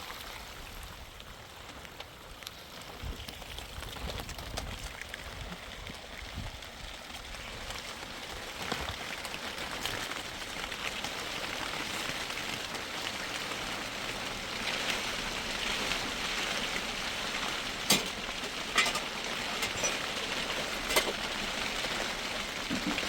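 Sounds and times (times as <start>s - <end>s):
steady rain hiss: 0.0s - 23.0s.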